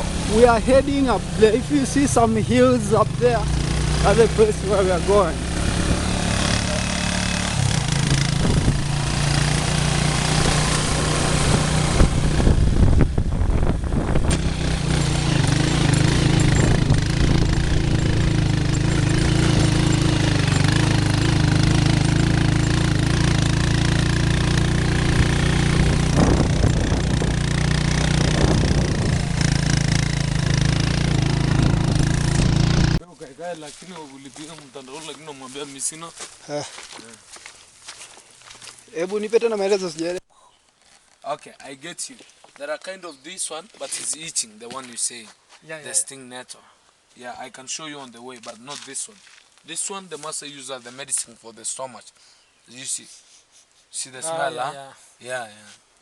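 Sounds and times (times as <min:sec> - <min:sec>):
motorcycle engine humming: 0:00.0 - 0:33.0.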